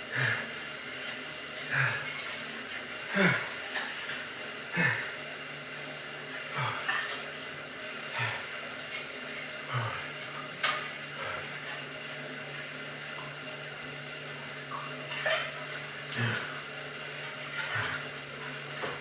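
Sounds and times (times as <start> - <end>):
man breathing hard: 0.0 - 0.7, 1.6 - 2.4, 3.0 - 3.7, 4.7 - 5.2, 6.4 - 7.0, 8.1 - 8.6, 9.7 - 10.2.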